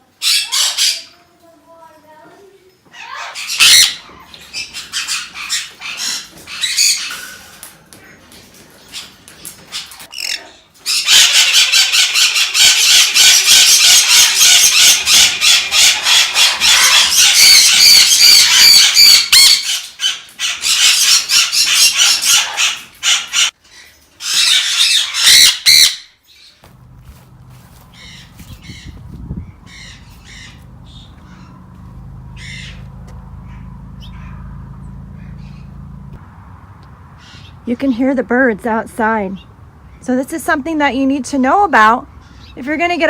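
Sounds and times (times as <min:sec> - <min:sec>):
parrots screaming: 0:00.2 - 0:01.2, 0:02.9 - 0:07.7, 0:08.8 - 0:26.6, 0:27.6 - 0:34.6, 0:35.2 - 0:35.7, 0:37.2 - 0:37.6.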